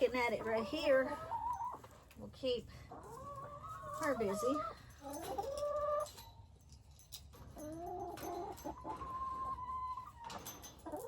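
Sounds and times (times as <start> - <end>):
hens clucking and calling: 0.2 - 2.0, 2.9 - 6.1, 7.8 - 11.0.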